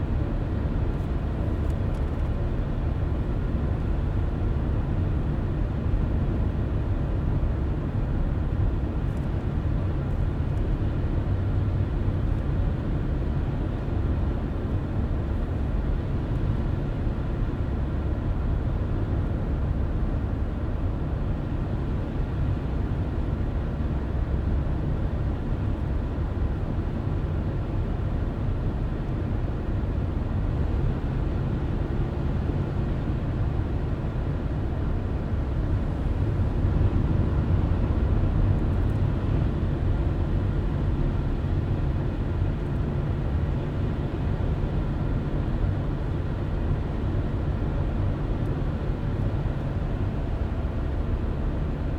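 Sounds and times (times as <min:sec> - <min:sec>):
car driving road noise: 0:27.6 - 0:51.9.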